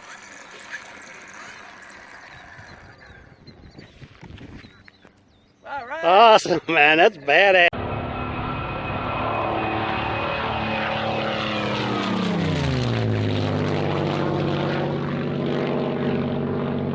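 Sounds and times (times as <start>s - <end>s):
model plane motor buzzing: 0.0s - 3.4s.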